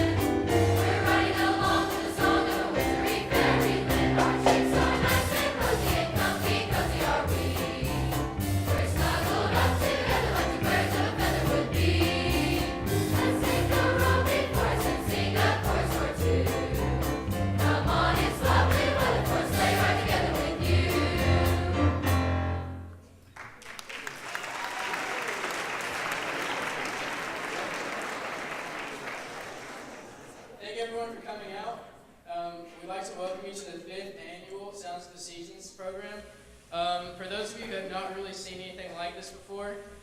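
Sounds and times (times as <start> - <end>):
choir singing with instrumental backing: 0.0 - 22.9
applause: 23.2 - 30.4.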